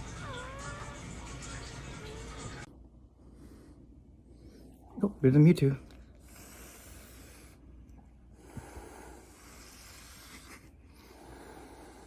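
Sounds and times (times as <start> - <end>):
cats hissing: 6.2 - 7.6, 8.4 - 12.0.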